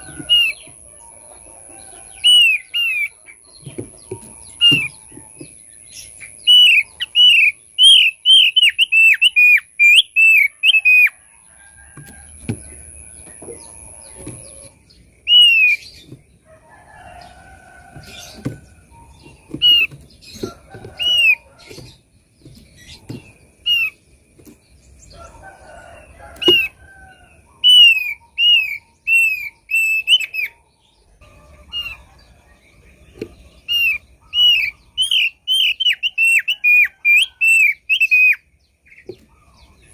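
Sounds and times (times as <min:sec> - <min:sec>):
bird calling sharp whistled notes: 0:06.4 - 0:11.1.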